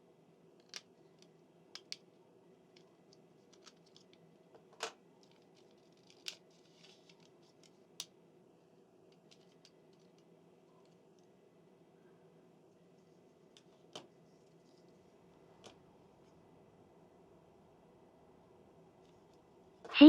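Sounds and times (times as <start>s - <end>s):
small plastic parts clicking: 0.6s - 2.0s, 2.7s - 8.1s.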